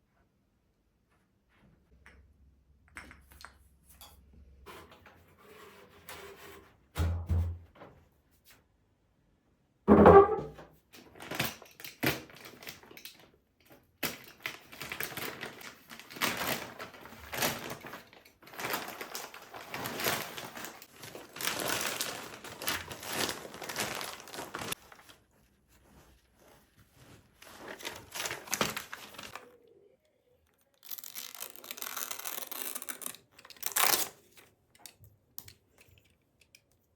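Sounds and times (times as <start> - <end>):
thump: 9.9 - 10.6
packaging crinkling and rustling: 11.0 - 29.6, 30.7 - 34.5.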